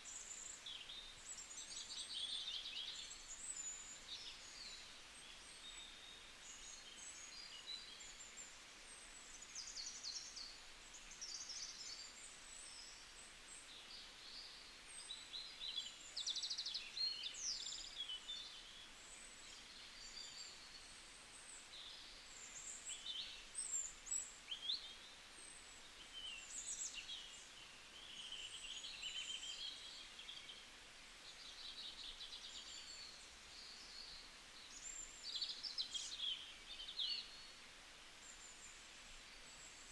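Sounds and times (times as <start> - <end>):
faint background hiss: 0.0 - 39.9.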